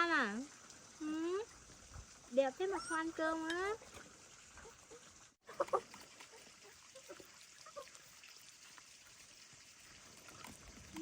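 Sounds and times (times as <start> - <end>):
high animal squeaks: 2.6 - 3.4.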